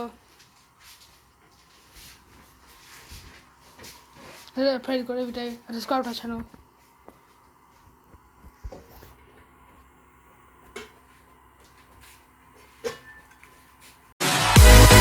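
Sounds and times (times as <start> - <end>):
loud electronic dance music: 14.2 - 15.0.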